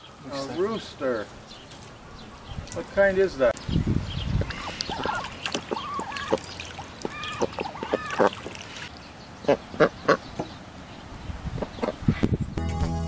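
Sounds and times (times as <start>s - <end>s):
ducks quacking: 4.4s - 10.6s, 11.6s - 12.2s.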